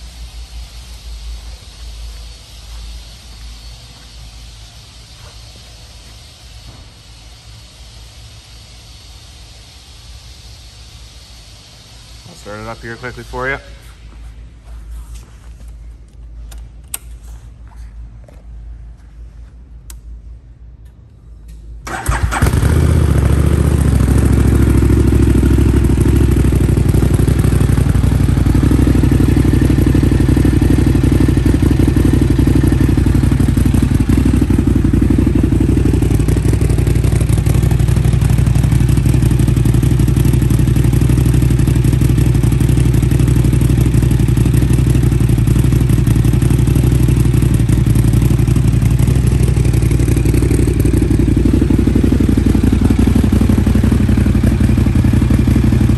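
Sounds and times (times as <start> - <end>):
motorcycle engine idling: 21.9 - 55.9.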